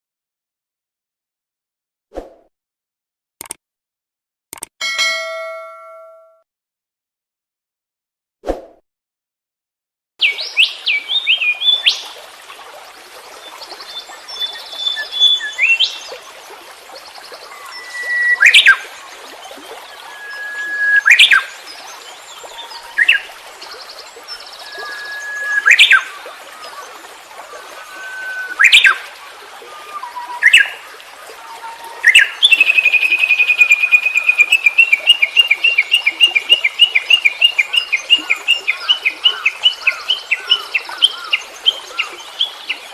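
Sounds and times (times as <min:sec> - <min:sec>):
rising whistled bird notes: 0:14.5 - 0:15.8, 0:17.5 - 0:18.8, 0:20.1 - 0:21.5, 0:24.6 - 0:26.8, 0:27.8 - 0:29.0.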